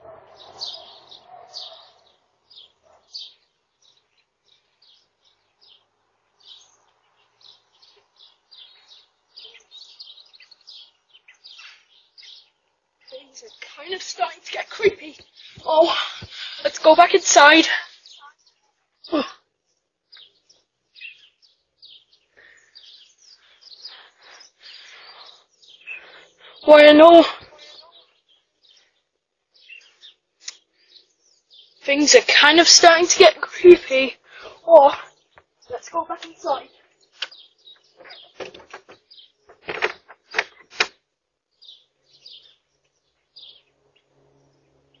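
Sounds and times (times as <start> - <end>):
small birds chirping: 0.0 - 45.0
sharp knocks and clatters: 37.2 - 41.0.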